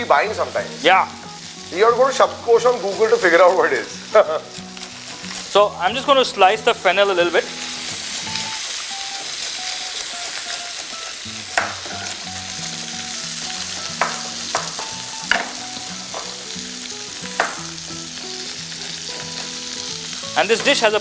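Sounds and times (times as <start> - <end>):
chicken sizzling in a pan: 0.0 - 21.0
knife chopping on board: 17.4 - 17.6.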